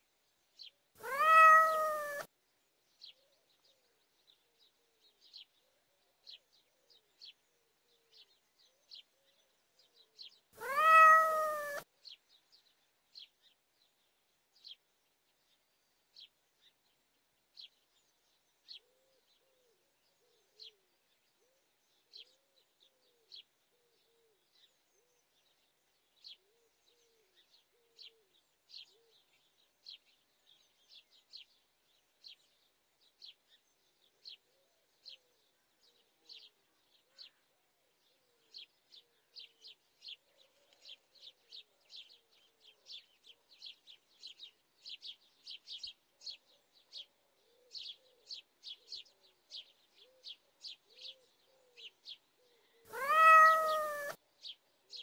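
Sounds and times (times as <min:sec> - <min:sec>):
small birds chirping: 0:00.6 - 0:02.3, 0:08.1 - 0:13.6, 0:38.1 - 0:55.0
faint low bird calls: 0:01.0 - 0:02.3, 0:10.6 - 0:11.8, 0:52.5 - 0:54.2.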